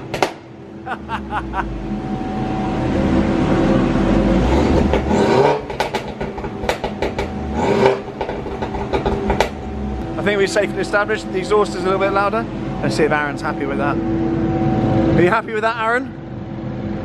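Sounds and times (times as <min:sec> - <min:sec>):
car engine revving hard: 0:01.2 - 0:10.1.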